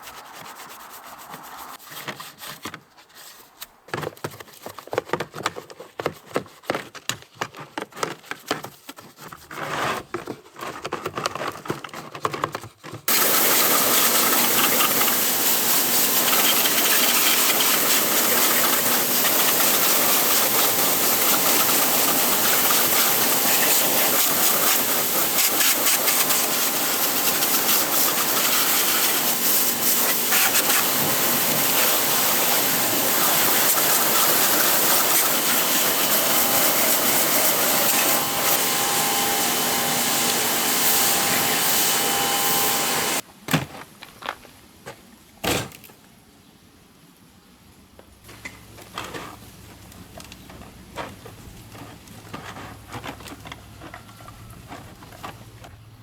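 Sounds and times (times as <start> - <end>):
brush scrubbing: 0.0 - 3.6, 13.1 - 43.2, 50.6 - 55.7
water spray hissing: 13.1 - 43.2.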